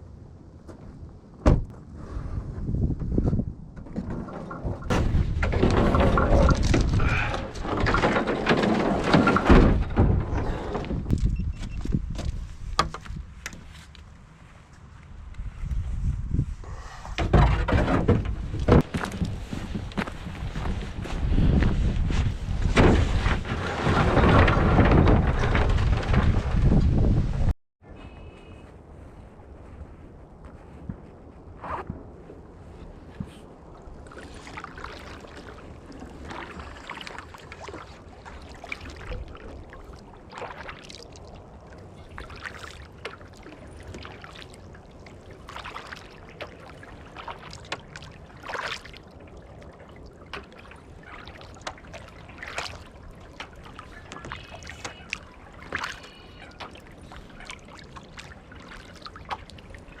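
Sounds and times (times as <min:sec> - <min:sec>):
kayak paddle splashing: 0:33.7 - 1:00.0
water trickling off paddle: 0:33.8 - 1:00.0.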